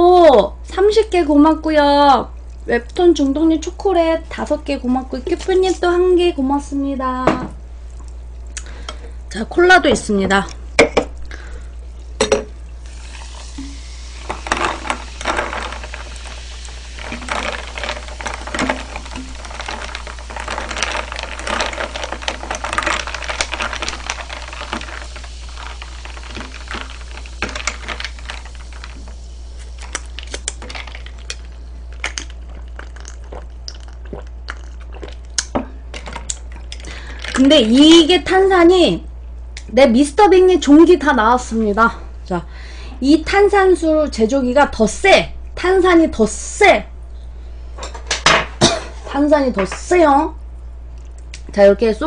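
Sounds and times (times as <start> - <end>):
low electrical hum: 0.0 - 52.0
containers and utensils clicking: 12.2 - 38.0.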